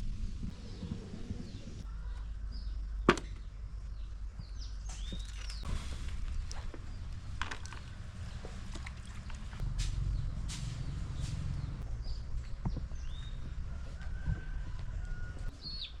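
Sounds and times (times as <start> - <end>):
low rumble: 5.6 - 13.9
bird chirp: 10.1 - 14.3, 15.1 - 16.0.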